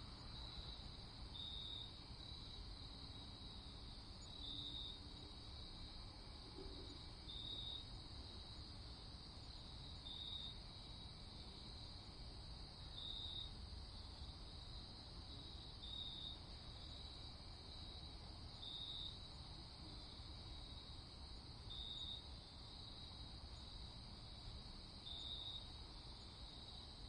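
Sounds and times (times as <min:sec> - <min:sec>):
crickets chirping: 0:00.0 - 0:27.0
short insect trill: 0:00.2 - 0:02.0.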